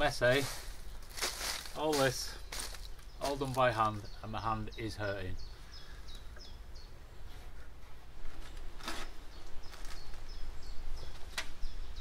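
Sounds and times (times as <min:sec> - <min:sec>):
small bird chirping: 0:00.5 - 0:07.7, 0:08.4 - 0:12.0.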